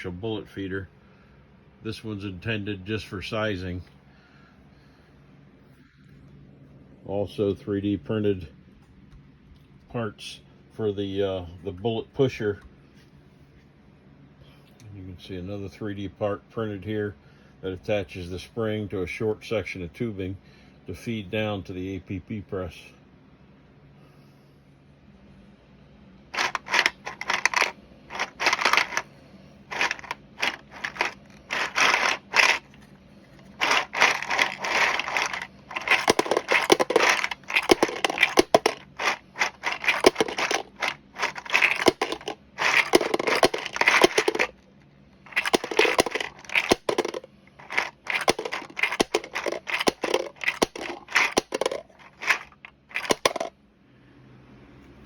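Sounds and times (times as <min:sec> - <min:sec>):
bullets clattering in plastic feeder: 0:26.4 - 0:29.1, 0:29.7 - 0:32.8, 0:33.4 - 0:44.6, 0:45.3 - 0:53.5.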